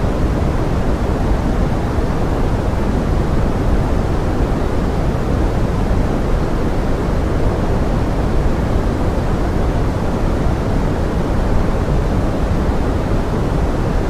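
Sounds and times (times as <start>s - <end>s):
steady low pink noise hiss: 0.0s - 14.0s.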